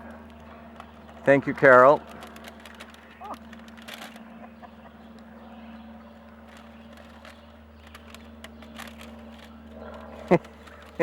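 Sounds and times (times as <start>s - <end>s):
steady low hum: 0.0s - 11.0s
puppies chewing plastic planter: 0.8s - 4.2s, 6.4s - 11.0s.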